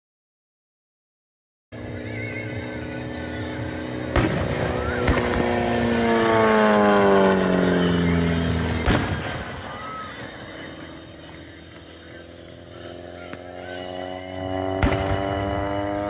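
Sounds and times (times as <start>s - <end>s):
engine passing by: 1.8s - 16.0s
sharp bangs: 4.1s - 16.0s.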